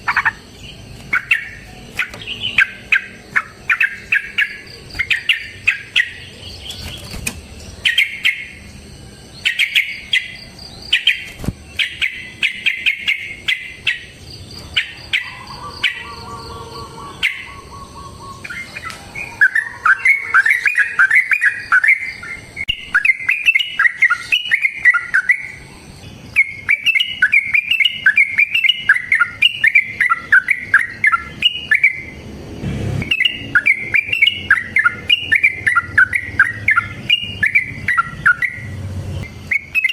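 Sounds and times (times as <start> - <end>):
bulbuls chattering: 0.0 - 39.9
bulbul bubbling song: 14.8 - 25.6, 26.2 - 32.1, 33.0 - 39.9.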